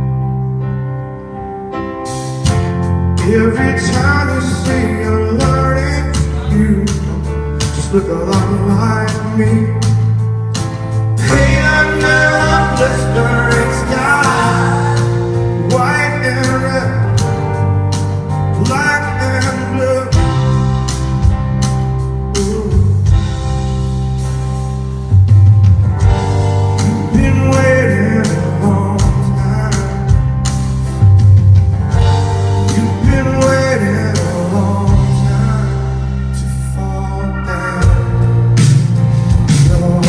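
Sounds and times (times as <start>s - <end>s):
bass guitar notes: 0.0s - 40.0s
drum hits: 10.6s - 17.5s
person singing: 11.2s - 17.6s, 22.3s - 23.4s, 26.8s - 30.4s, 32.6s - 38.4s, 39.5s - 40.0s.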